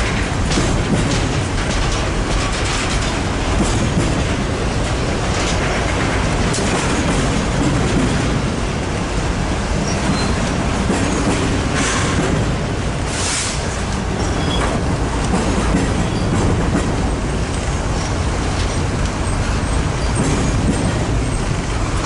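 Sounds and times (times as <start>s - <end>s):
train cars rumbling past: 0.0s - 22.0s
wheels clattering over rail joints: 0.0s - 22.0s
faint wheel squeals: 14.2s - 14.7s.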